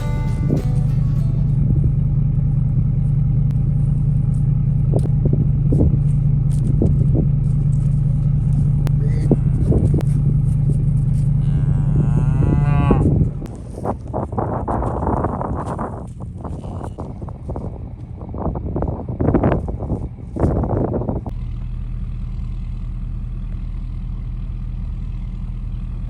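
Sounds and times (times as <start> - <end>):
engine idling hum: 0.0 - 26.0
cattle mooing: 8.8 - 10.2, 11.1 - 13.5.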